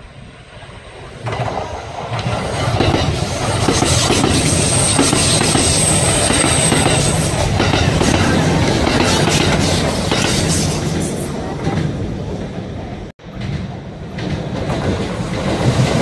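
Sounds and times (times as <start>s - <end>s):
electric train passing: 0.0s - 16.0s
high thin squeal: 3.8s - 7.4s.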